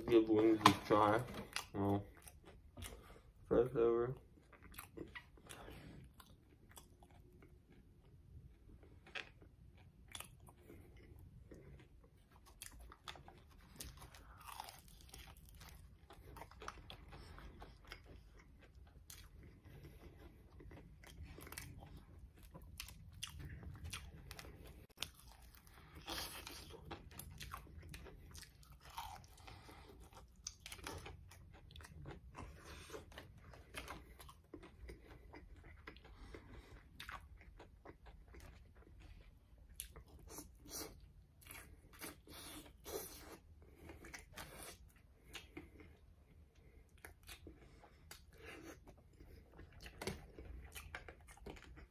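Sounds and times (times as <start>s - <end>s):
crunching fried chicken: 12.0s - 19.6s, 20.2s - 40.8s.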